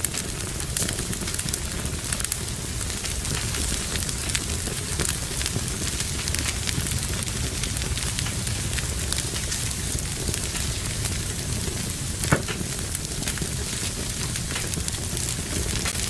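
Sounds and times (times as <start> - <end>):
fire crackling: 0.0 - 16.0
sharp fire pop: 11.6 - 16.0.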